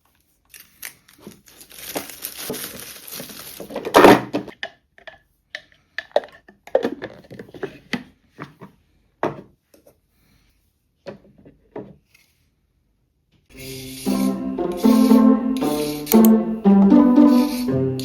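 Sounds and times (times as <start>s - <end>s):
soft piano music: 13.6s - 18.0s.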